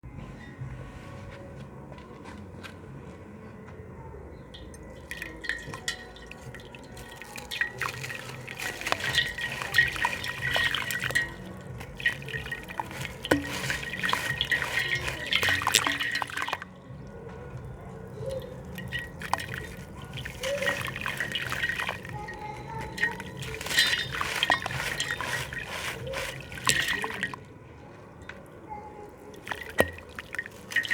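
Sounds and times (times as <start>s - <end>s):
small splashes and drips: 4.6s - 27.5s, 28.3s - 30.9s
slab crumbling in water: 5.0s - 16.6s, 18.6s - 27.4s, 29.4s - 30.9s.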